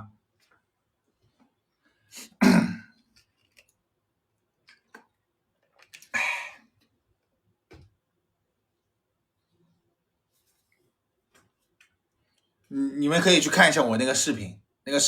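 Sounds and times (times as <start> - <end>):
man clearing his throat: 2.2 - 3.0
breathy exhale: 6.1 - 6.7.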